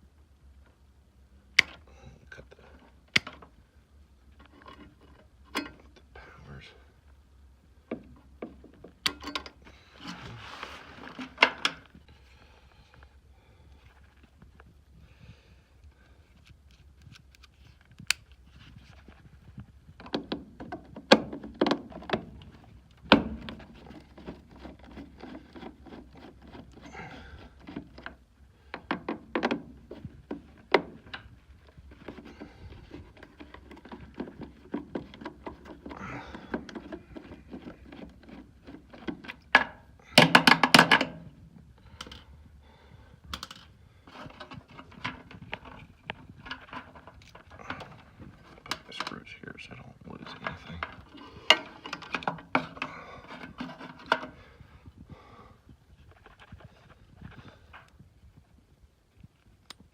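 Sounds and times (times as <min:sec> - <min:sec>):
tools knocking and clicking: 0:07.9 - 0:09.6, 0:33.2 - 0:41.2.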